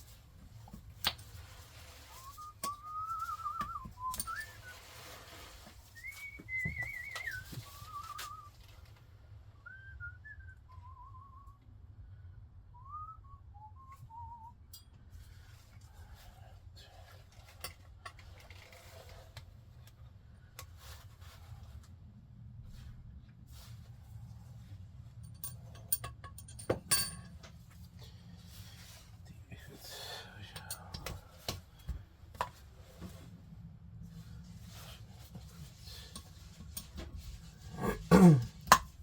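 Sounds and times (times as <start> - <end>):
low steady hum: 0.0 - 39.0
person whistling a tune: 2.2 - 4.9, 6.0 - 8.5, 9.6 - 11.6, 12.8 - 14.6.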